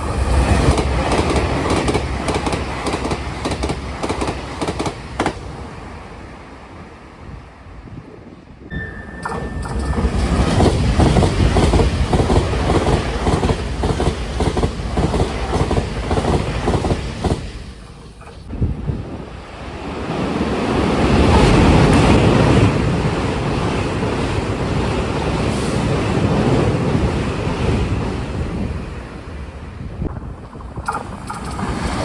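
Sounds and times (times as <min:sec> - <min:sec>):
wheels clattering over rail joints: 0:00.0 - 0:05.7, 0:09.1 - 0:19.0, 0:30.0 - 0:32.0
express train passing at speed: 0:00.0 - 0:32.0.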